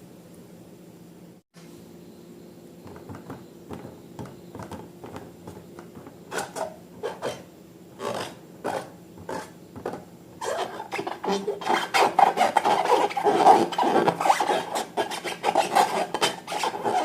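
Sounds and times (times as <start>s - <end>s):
faint steady hum: 0.0s - 17.0s
slime scraping and rubbing: 4.6s - 17.0s.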